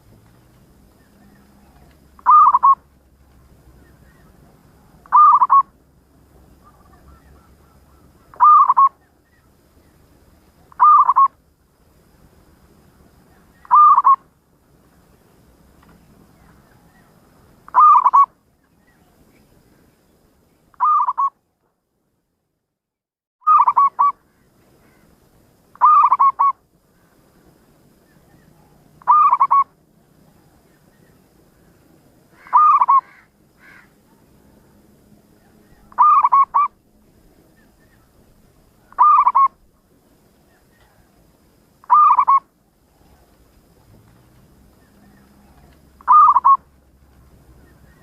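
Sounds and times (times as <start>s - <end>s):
dove cooing: 1.0s - 2.9s, 4.1s - 5.8s, 6.6s - 9.1s, 10.7s - 11.3s, 13.6s - 14.2s, 17.7s - 18.3s, 20.8s - 21.3s, 25.8s - 26.6s, 28.3s - 29.8s, 32.4s - 34.2s, 35.4s - 36.8s, 38.8s - 39.6s, 41.8s - 44.0s, 44.8s - 46.7s.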